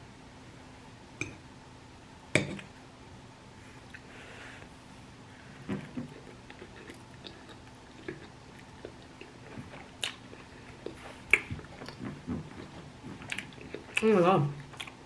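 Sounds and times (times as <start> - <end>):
person chewing: 5.6 - 15.0.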